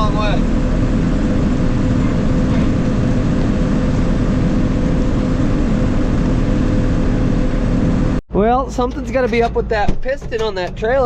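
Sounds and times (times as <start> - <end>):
forage harvester engine hum: 0.0 - 11.0.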